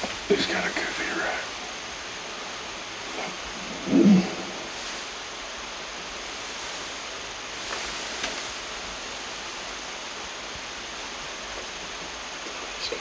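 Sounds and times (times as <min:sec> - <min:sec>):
light rain hissing: 0:00.0 - 0:13.0.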